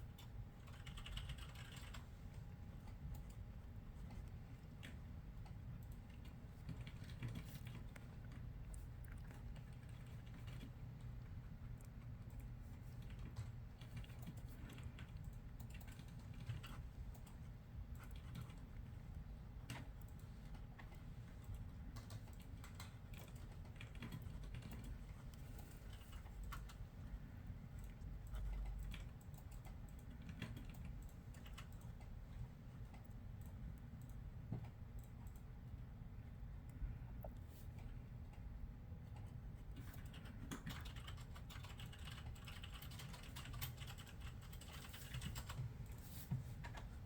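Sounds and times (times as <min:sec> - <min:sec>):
office room hum: 0:00.0 - 0:47.0
typing on a computer keyboard: 0:00.2 - 0:03.4, 0:04.8 - 0:08.4, 0:09.3 - 0:11.1, 0:11.9 - 0:18.7, 0:19.6 - 0:26.8, 0:27.8 - 0:32.2, 0:32.9 - 0:35.5, 0:39.0 - 0:46.0.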